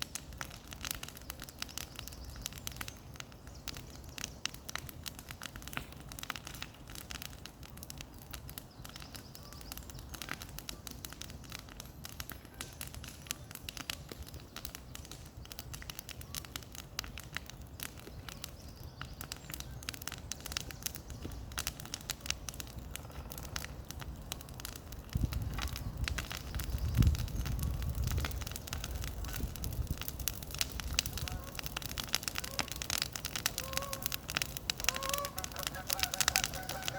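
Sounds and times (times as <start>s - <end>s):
bonfire crackling and popping: 0.0s - 36.9s.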